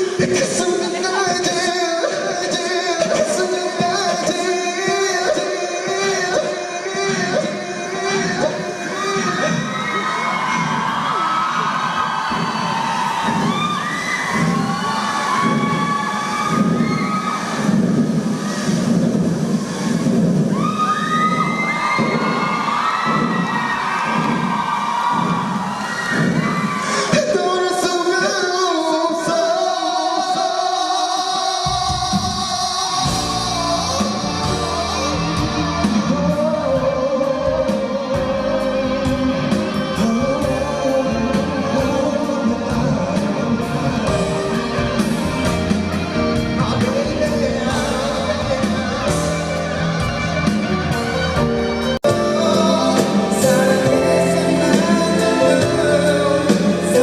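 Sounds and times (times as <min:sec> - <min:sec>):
man singing: 0:00.0 - 0:09.8, 0:26.8 - 0:51.2, 0:52.0 - 0:57.0
band with bass and drums: 0:00.0 - 0:27.4, 0:31.6 - 0:57.0.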